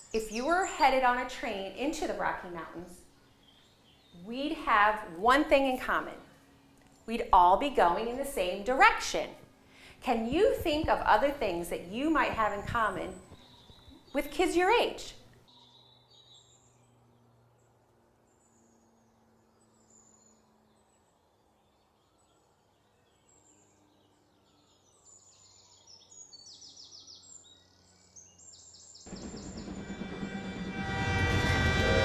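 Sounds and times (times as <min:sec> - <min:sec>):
bird chirps: 0:10.2 - 0:16.8
train horn: 0:29.1 - 0:32.0.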